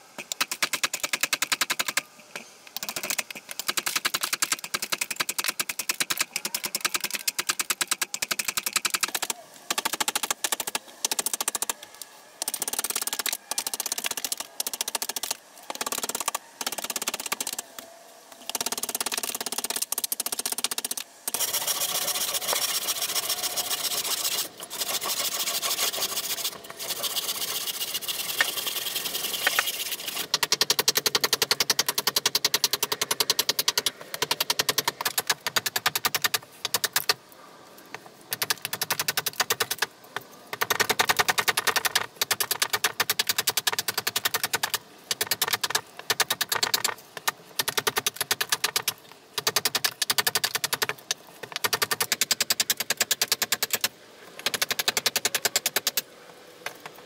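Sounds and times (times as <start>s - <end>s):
handsaw cutting wood: 21.3s - 30.3s.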